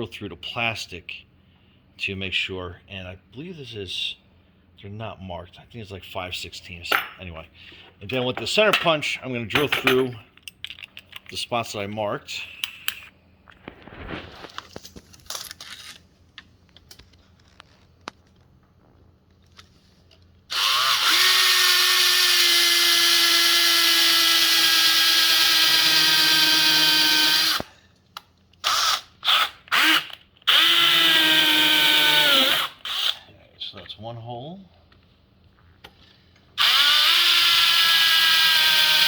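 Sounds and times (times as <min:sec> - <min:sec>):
power drill whining: 0:20.5 - 0:27.7, 0:28.6 - 0:33.2, 0:36.6 - 0:39.0.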